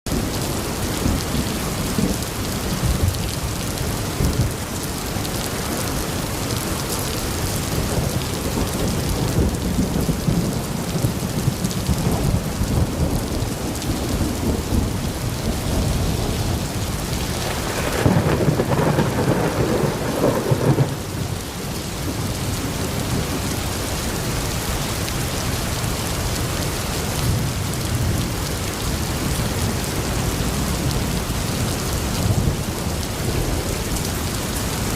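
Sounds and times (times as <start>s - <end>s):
heavy rain: 0.1s - 34.9s
rolling thunder: 7.6s - 23.5s.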